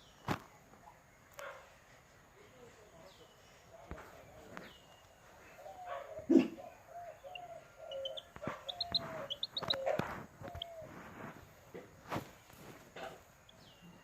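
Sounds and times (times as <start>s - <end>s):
chicken clucking: 5.4s - 11.9s
high bird chirps: 6.8s - 10.9s.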